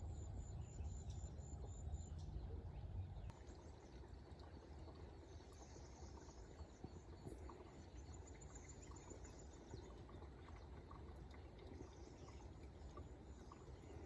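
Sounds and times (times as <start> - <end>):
faint birds chirping: 0.0 - 14.0
flowing stream water: 3.3 - 14.0.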